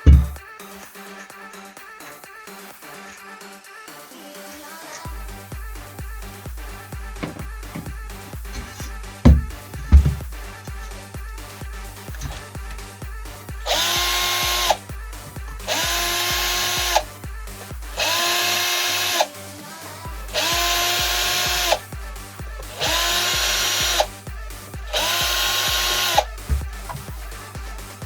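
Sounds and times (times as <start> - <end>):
electronic music beat: 0.0 - 0.4, 5.1 - 18.3, 20.1 - 28.0
loud rasping noise: 0.0 - 0.4, 7.0 - 10.6, 11.8 - 12.8, 13.7 - 17.1, 18.0 - 19.3, 20.4 - 21.8, 22.6 - 24.1, 24.9 - 28.0
electric motor whining: 13.7 - 14.8, 15.7 - 17.0, 18.0 - 19.3, 20.4 - 21.8, 22.8 - 24.1, 25.0 - 27.1.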